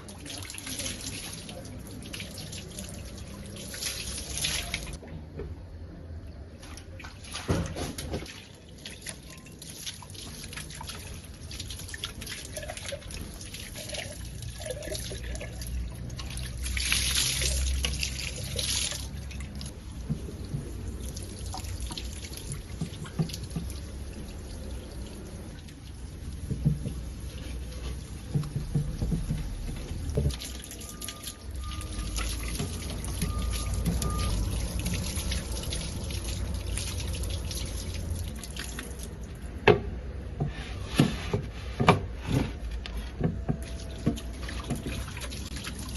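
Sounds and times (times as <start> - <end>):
water pouring and trickling: 0.0 - 5.0, 6.2 - 41.4, 42.4 - 45.9
knocks and clatter: 28.3 - 30.4.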